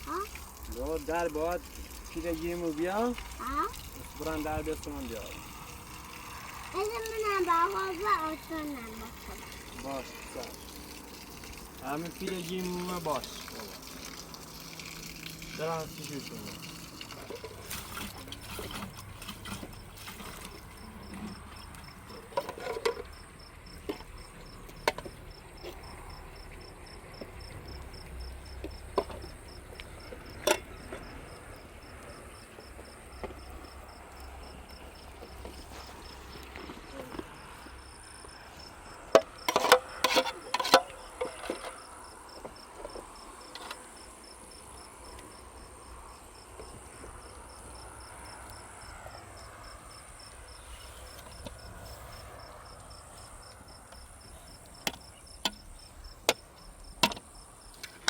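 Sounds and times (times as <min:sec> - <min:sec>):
crickets chirping: 0:00.0 - 0:58.0
sharp clicks and knocks: 0:54.8 - 0:58.0.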